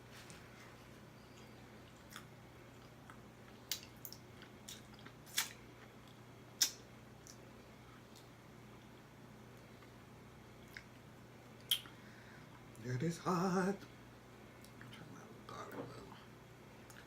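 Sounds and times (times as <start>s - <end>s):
person chewing: 1.3s - 7.4s, 10.6s - 11.0s
wet mouth smacks and clicks: 6.6s - 7.4s, 11.6s - 12.0s.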